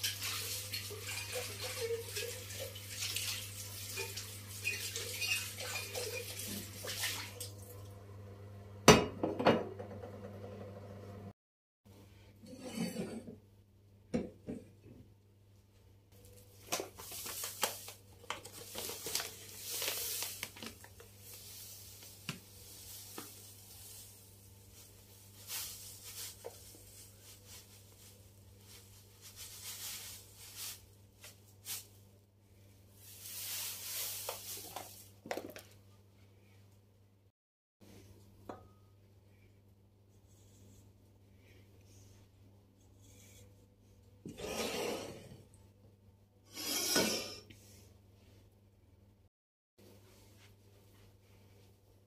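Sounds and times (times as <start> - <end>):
packaging rustling: 16.9 - 24.2.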